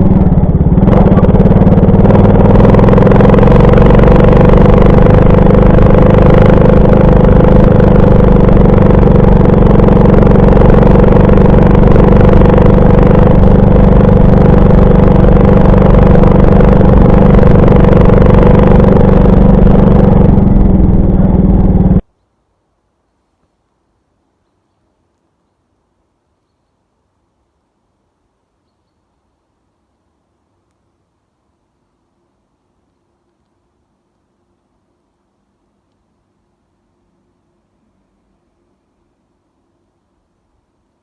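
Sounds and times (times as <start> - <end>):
moped engine running: 0.0 - 22.0.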